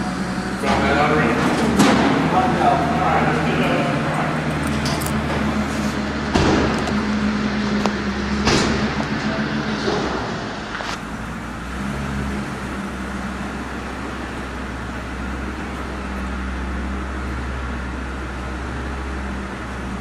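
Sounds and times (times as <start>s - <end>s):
truck engine running: 0.0s - 20.0s
sharp knocks and clanks: 0.7s - 2.6s, 3.6s - 10.8s.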